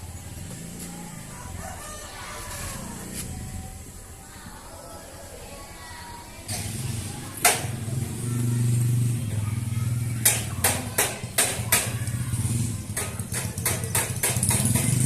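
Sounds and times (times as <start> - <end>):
engine humming: 0.0 - 4.7, 6.4 - 15.0
sharp knocks: 10.2 - 12.0, 12.9 - 15.0.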